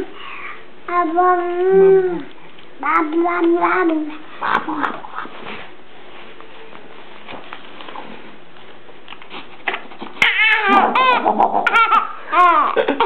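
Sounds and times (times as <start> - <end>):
baby squealing: 10.2 - 12.8.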